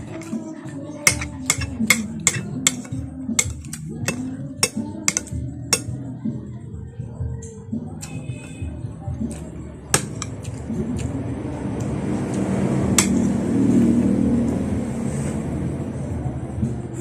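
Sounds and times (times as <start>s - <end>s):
background music: 0.0s - 14.8s
spoon clinking on a plate: 1.1s - 5.9s, 10.0s - 10.4s.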